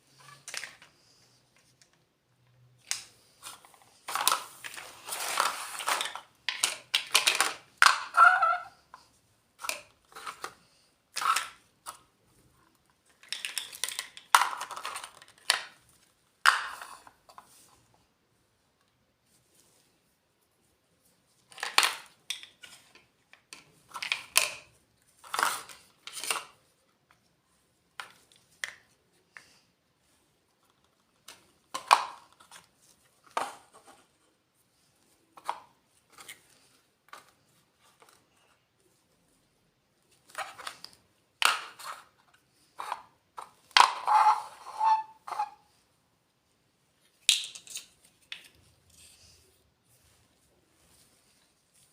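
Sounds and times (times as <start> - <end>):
toy pieces clicking and tapping: 5.9 - 8.6, 13.1 - 15.8.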